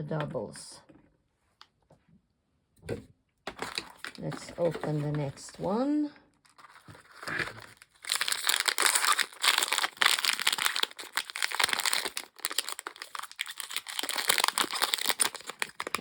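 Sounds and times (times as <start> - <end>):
plastic packaging crinkling: 3.5 - 5.7, 6.4 - 16.0.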